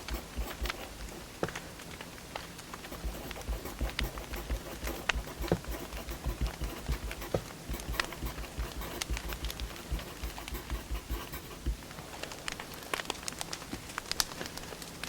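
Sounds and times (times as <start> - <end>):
wood fire crackling: 12.1 - 15.0.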